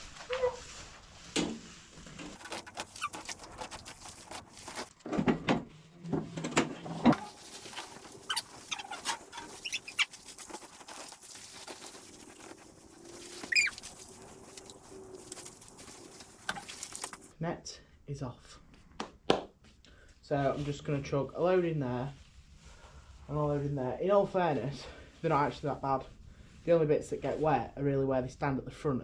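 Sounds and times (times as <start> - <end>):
net wrap crackling and rustling: 0.0 - 4.9, 7.1 - 17.3
bird chirping: 7.2 - 11.1, 12.0 - 17.0.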